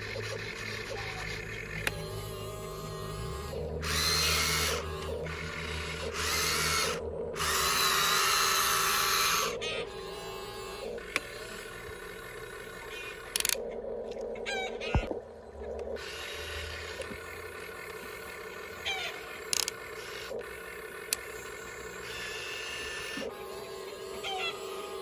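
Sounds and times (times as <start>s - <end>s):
sharp clicks and rattles: 0.0s - 2.8s, 10.6s - 13.6s, 15.8s - 23.3s
small electric motors whirring: 0.0s - 15.2s, 15.9s - 25.0s.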